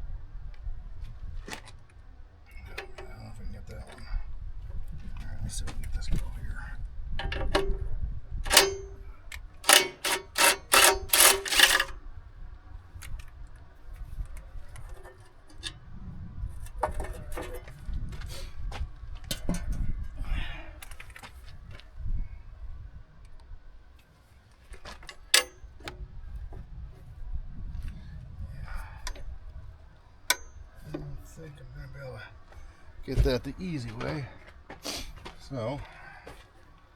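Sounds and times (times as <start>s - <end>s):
sharp metallic clinks: 8.5s - 12.0s.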